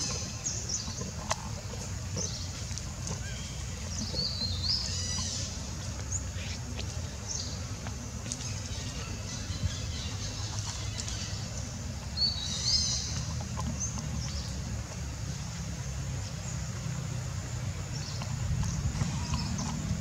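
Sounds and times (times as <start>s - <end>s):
birds chirping: 0.0s - 20.0s
steady low rumble: 0.0s - 20.0s.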